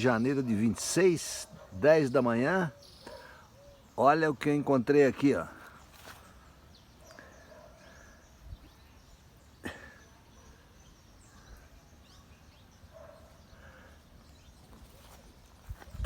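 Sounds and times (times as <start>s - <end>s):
bird calls and chirps: 0.0s - 16.0s.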